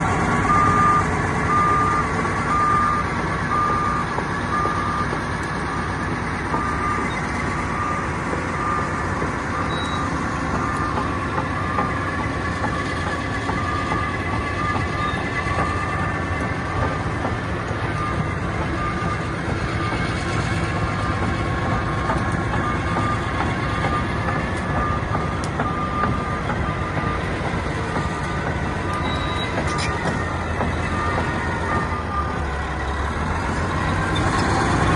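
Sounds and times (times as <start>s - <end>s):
bulldozer diesel engine running: 0.0s - 34.9s
tracks clattering: 0.0s - 34.9s
reverse alarm beeping: 0.5s - 5.1s, 6.6s - 12.8s, 13.5s - 17.1s, 17.8s - 20.0s, 22.5s - 27.4s, 28.0s - 32.4s.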